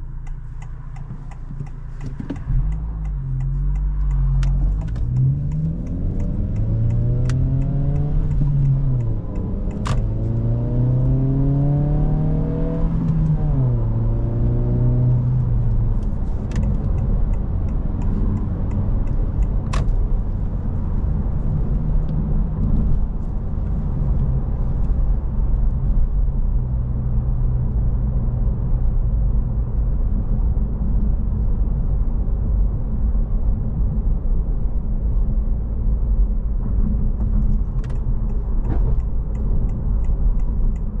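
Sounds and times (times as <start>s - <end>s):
car engine accelerating: 0.0s - 32.6s
road rumble: 0.0s - 41.0s
sharp clicks: 0.2s - 10.1s.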